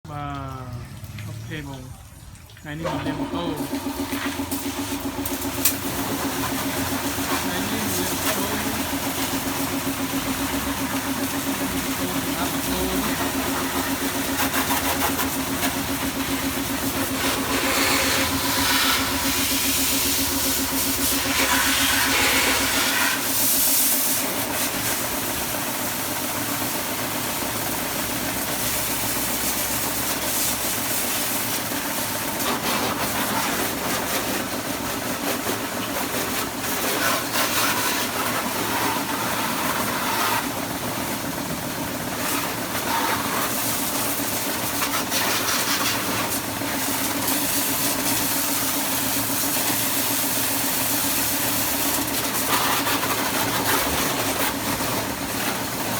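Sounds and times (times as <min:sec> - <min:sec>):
motor humming: 0:02.8 - 0:23.4
water spraying with a hiss: 0:03.3 - 0:55.9.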